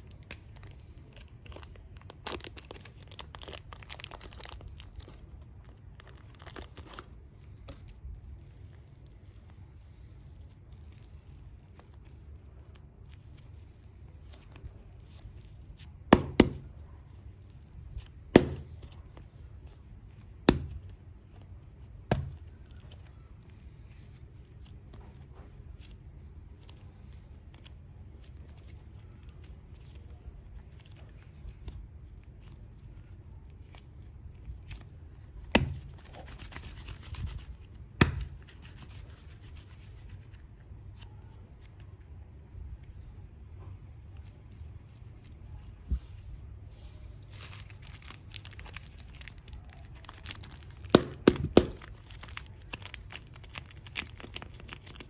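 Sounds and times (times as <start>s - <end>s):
packaging rustle: 0.0s - 19.8s, 47.2s - 55.0s
packaging clicks and knocks: 50.1s - 52.9s.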